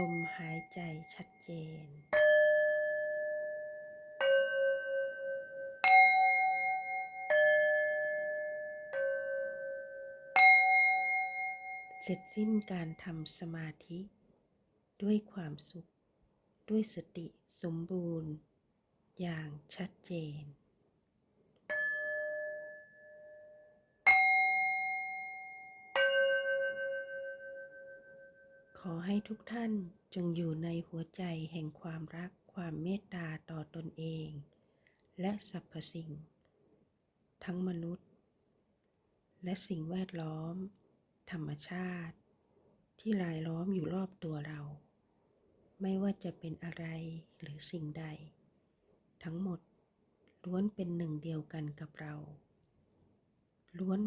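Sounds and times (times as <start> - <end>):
struck metal bells ringing: 0.0 - 1.1, 2.0 - 12.5, 21.7 - 28.8
bell chimes ringing: 24.1 - 28.6.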